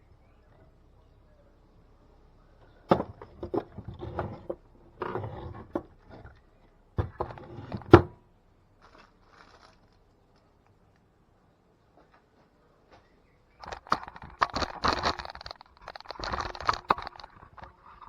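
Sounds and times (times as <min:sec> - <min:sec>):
plastic clicks knocks and scrapes: 0:13.6 - 0:18.0.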